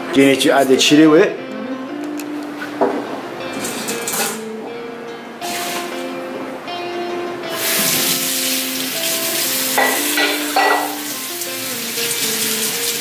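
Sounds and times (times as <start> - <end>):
gentle background music: 0.0 - 13.0
tap water running into sink: 7.6 - 13.0.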